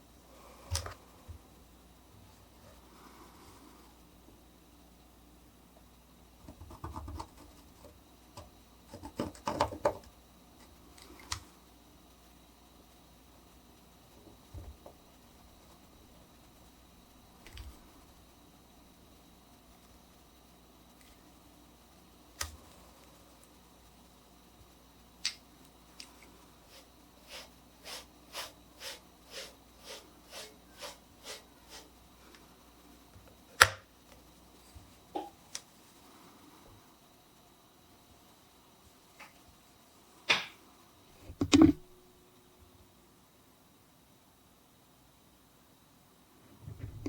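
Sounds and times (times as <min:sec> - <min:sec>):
needle scratching copper plate: 0:26.7 - 0:31.9.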